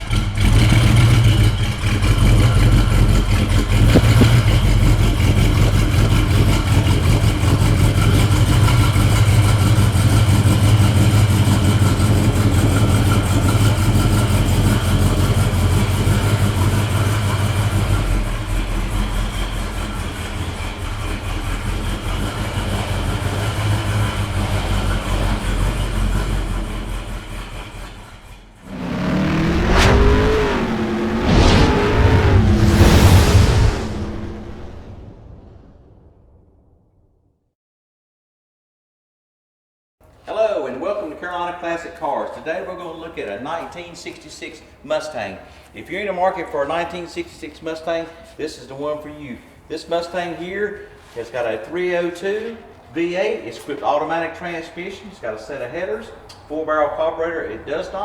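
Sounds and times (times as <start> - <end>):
car engine running steadily: 0.0 - 33.0.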